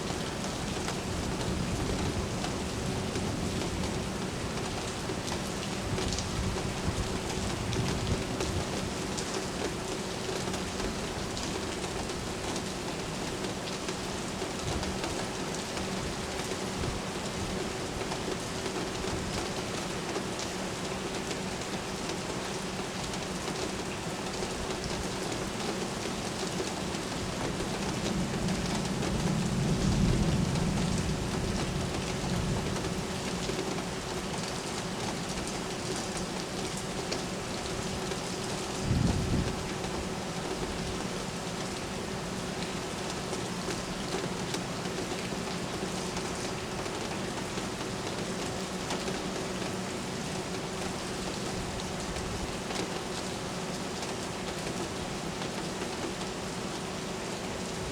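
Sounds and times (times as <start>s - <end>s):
steady rain falling: 0.0s - 57.9s
low thunder rumble: 27.8s - 33.1s, 38.8s - 39.7s.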